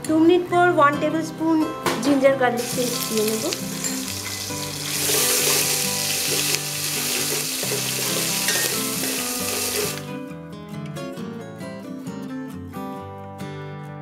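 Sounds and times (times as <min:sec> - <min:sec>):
guitar music: 0:00.0 - 0:14.0
food sizzling in hot oil: 0:02.6 - 0:10.0
metal spatula stirring: 0:03.5 - 0:10.0.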